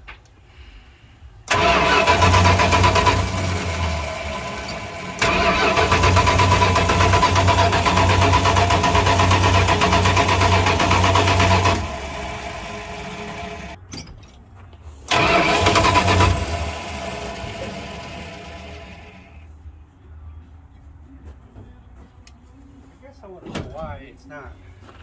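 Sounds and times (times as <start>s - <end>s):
pickup truck engine starting: 1.5s - 13.8s, 15.0s - 19.4s.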